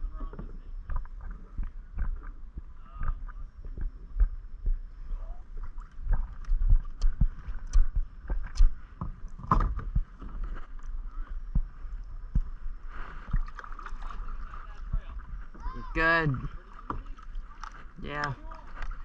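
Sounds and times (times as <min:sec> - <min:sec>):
kayak knocks and clatters: 0:08.9 - 0:10.8, 0:16.4 - 0:19.0
paddle strokes splashing: 0:12.4 - 0:19.0.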